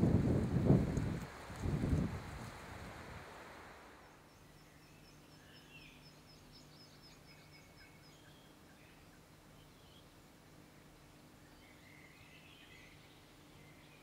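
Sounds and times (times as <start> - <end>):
wind on microphone: 0.0 - 3.3.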